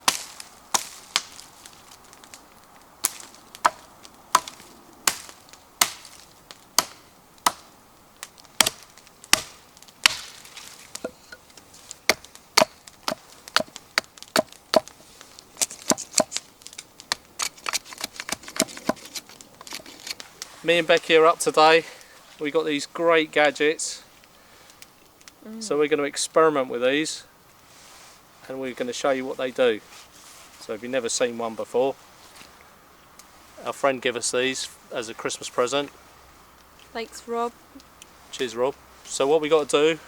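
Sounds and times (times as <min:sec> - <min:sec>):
wood being chopped: 0:00.0 - 0:01.5, 0:03.0 - 0:20.2.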